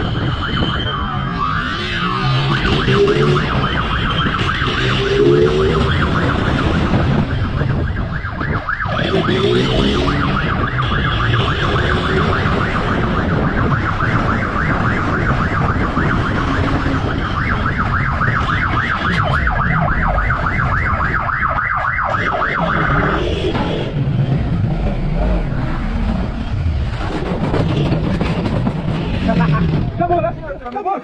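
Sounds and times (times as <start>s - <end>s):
police siren yelping: 0.0s - 24.0s
vehicle and road rumble: 0.0s - 31.0s.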